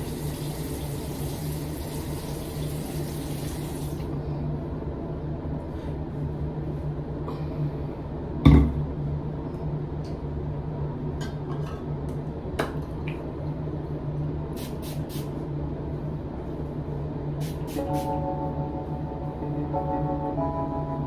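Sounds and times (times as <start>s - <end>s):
short hissing sounds: 14.6s - 15.4s, 17.4s - 18.1s
low hum: 17.8s - 21.0s.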